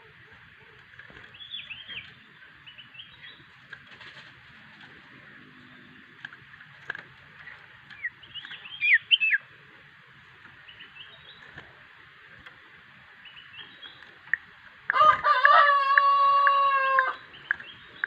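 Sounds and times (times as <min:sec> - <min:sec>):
bird whistled chirps: 0:08.4 - 0:09.4.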